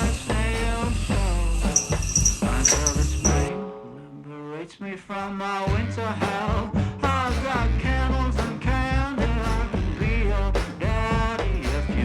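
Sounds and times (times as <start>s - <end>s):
music with strong bass line: 0.0s - 3.5s, 5.7s - 12.0s.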